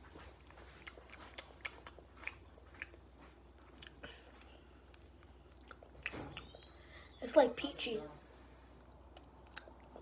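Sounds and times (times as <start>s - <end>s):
low steady hum: 0.0s - 10.0s
mouth clicks and smacks: 0.7s - 6.7s, 9.1s - 10.0s.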